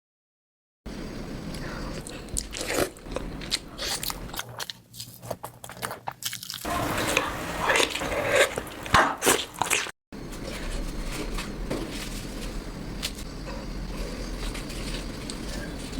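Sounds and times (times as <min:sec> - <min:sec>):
person chewing crunchy food: 0:01.5 - 0:10.0, 0:12.9 - 0:15.9.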